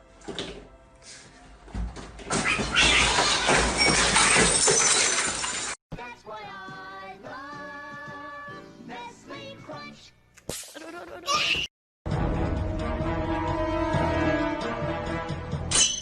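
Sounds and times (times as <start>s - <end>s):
things crashing and shattering: 2.4s - 5.8s
music with long held notes: 12.1s - 15.7s.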